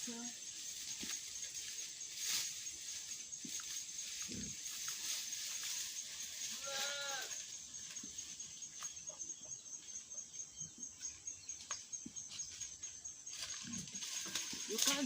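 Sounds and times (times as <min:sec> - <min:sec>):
wavering animal bleat: 0:06.5 - 0:07.4.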